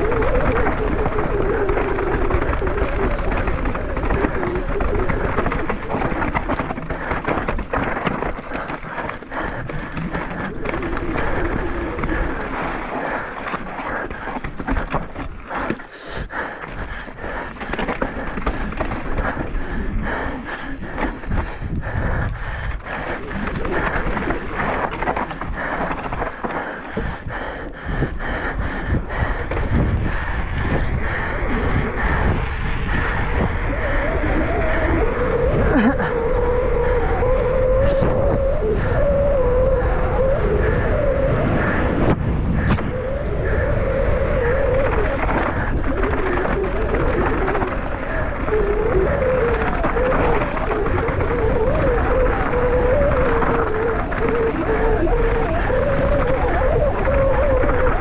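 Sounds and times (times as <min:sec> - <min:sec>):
tyres crunching over stones: 0:00.0 - 0:22.0, 0:22.7 - 0:28.1, 0:43.6 - 0:58.0
bike rattling: 0:00.0 - 0:58.0.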